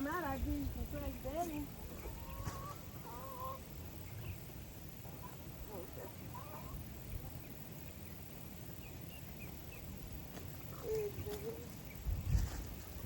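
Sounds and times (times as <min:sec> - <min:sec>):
chicken chirps: 0:02.0 - 0:04.4, 0:05.1 - 0:06.9.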